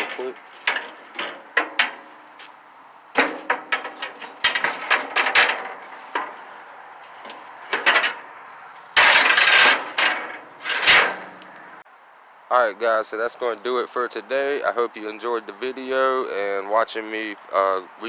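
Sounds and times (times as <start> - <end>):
metal grill grates clanking: 0.0 - 2.4, 3.1 - 11.6.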